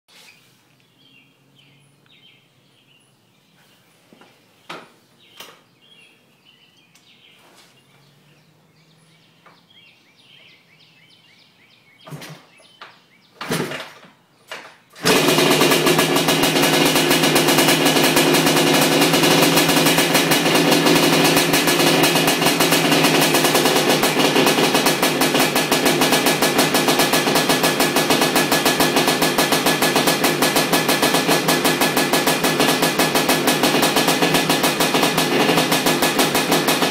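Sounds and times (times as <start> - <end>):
faint birdsong: 0.1 - 15.0
two-stroke engine running: 15.0 - 36.9.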